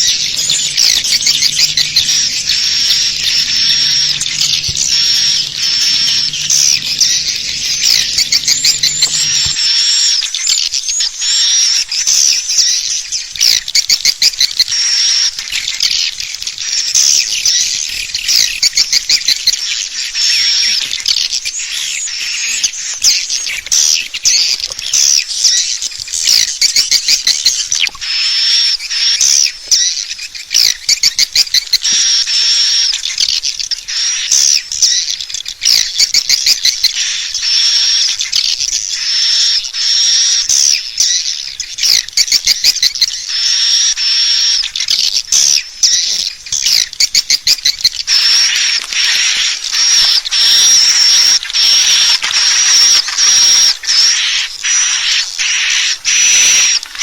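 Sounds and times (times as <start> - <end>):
swiftlets twittering chorus: 0.0 - 29.4, 31.8 - 57.0.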